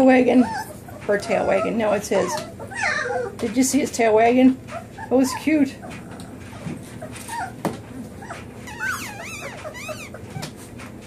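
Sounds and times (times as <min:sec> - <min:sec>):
puppies whimpering: 0:00.0 - 0:10.8.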